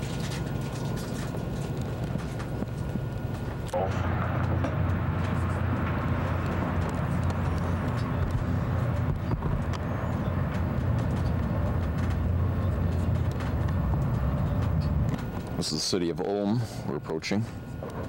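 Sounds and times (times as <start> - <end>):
train wheels rumbling on track: 1.8 - 16.3.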